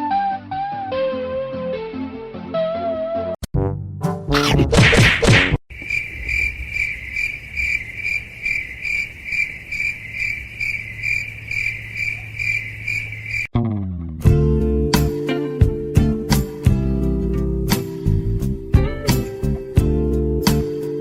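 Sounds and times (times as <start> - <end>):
cricket chirping: 5.7 - 13.5.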